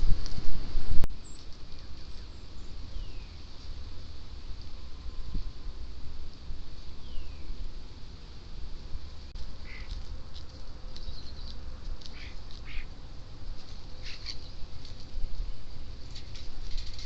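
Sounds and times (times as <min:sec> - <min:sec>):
low steady rumble: 0:00.0 - 0:17.0
birds chirping and calling: 0:09.6 - 0:10.0, 0:10.9 - 0:12.9, 0:13.9 - 0:14.8.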